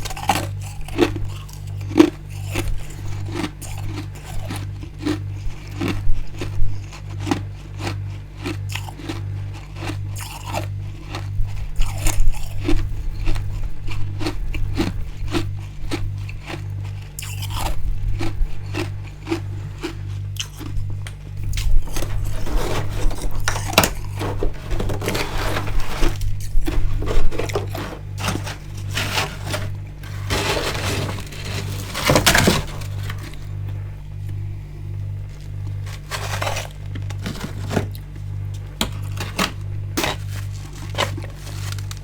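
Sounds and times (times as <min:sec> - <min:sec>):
frost being crunched by chewing: 0:00.0 - 0:34.4, 0:35.2 - 0:42.0
low pulsing hum: 0:09.2 - 0:42.0.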